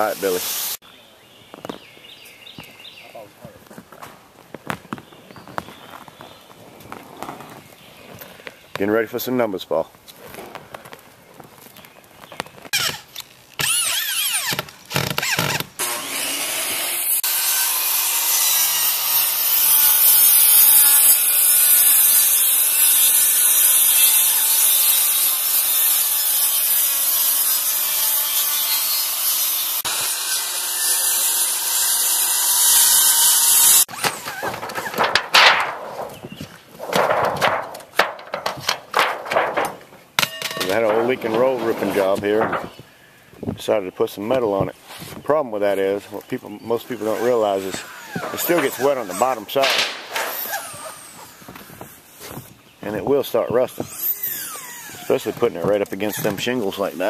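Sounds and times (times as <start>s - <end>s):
power saw cutting wood: 12.7s - 35.7s, 40.6s - 42.8s, 46.7s - 52.4s, 53.4s - 57.0s
handling knocks: 33.9s - 43.6s.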